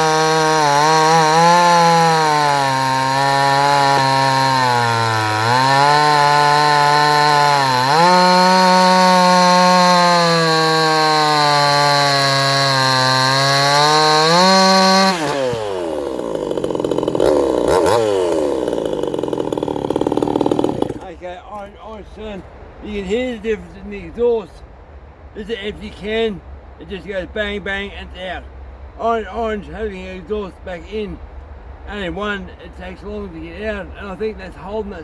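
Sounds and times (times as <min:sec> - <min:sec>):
chainsaw cutting at full throttle: 0:00.0 - 0:21.2.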